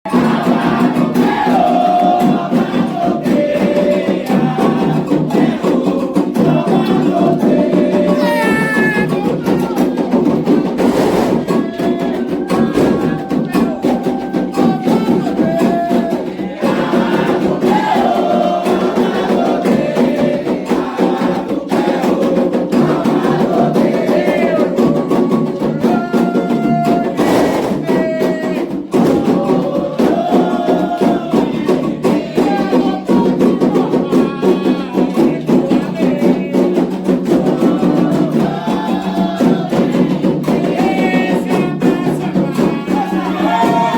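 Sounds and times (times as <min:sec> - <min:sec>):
hand drums fast rhythm: 0:00.0 - 0:43.9
group singing a chant: 0:00.1 - 0:43.9.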